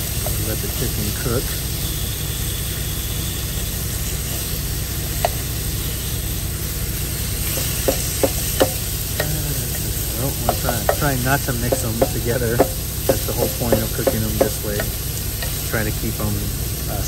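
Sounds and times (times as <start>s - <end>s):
chicken sizzling in a skillet: 0.0s - 17.0s
steady low hum: 0.0s - 17.0s
spatula tapping and scraping pan: 7.4s - 15.7s.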